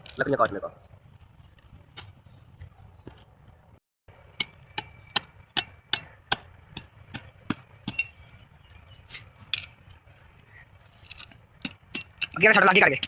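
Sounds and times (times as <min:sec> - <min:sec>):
axe chopping firewood: 0:04.3 - 0:08.2, 0:11.6 - 0:13.0.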